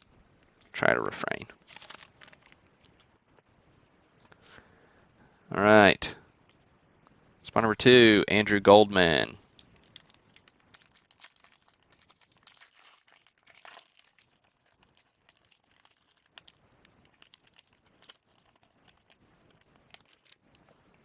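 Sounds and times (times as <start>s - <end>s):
wrapper crinkling: 0.0s - 3.4s, 9.4s - 21.0s.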